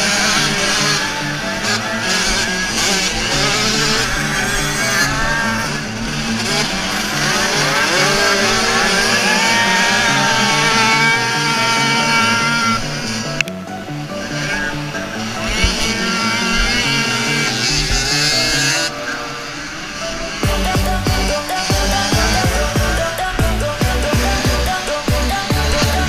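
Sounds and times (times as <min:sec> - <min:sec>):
motocross bike engines revving: 0:00.0 - 0:26.0
music with repeating beat: 0:20.4 - 0:26.0.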